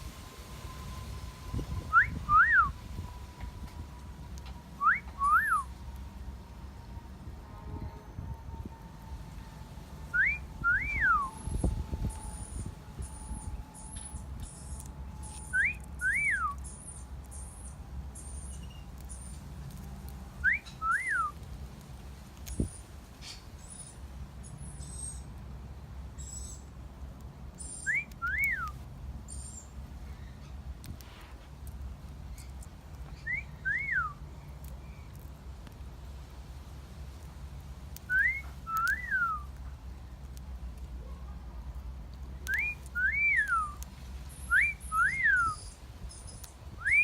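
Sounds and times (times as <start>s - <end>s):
two-note wolf whistle: 1.9s - 2.8s, 4.8s - 5.7s, 10.1s - 16.8s.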